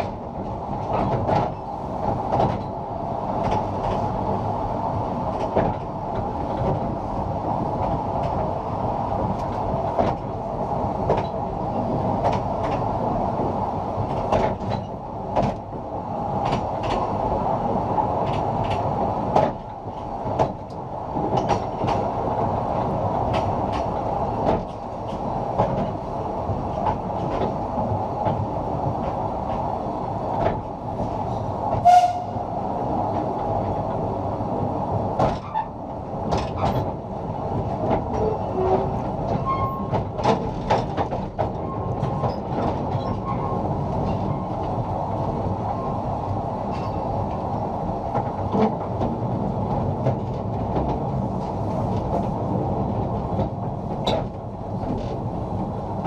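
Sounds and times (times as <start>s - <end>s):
train wheels rumbling on rails: 0.0s - 56.0s
sharp clicks and knocks: 2.3s - 2.7s, 14.1s - 15.7s, 20.3s - 22.1s.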